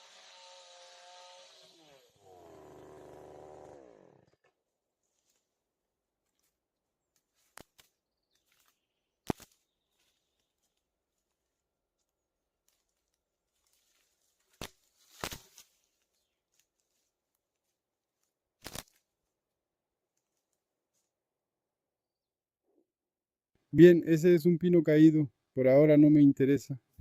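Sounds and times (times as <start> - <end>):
short sharp cracks: 14.5 - 15.7, 18.6 - 19.0.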